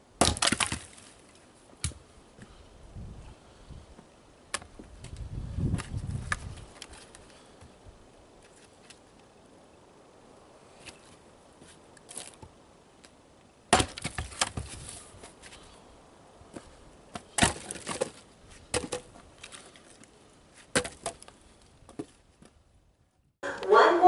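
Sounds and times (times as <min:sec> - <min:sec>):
wooden strikes on firewood: 0:00.2 - 0:01.0, 0:13.7 - 0:14.8, 0:17.1 - 0:19.2, 0:20.7 - 0:21.3
wood cracking and falling: 0:00.2 - 0:01.2, 0:13.7 - 0:15.0, 0:17.1 - 0:20.1, 0:20.7 - 0:21.4.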